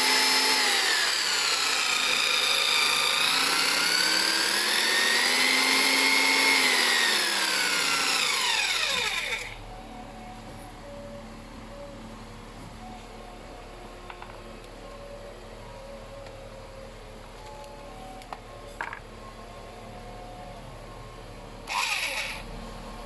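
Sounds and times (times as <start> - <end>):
belt sander motor whine: 0.0 - 9.7, 21.6 - 23.0.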